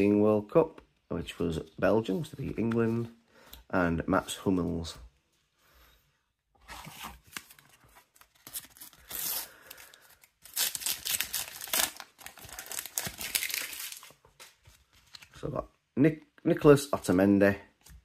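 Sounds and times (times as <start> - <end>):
packets tearing and crinkling: 6.9 - 14.6.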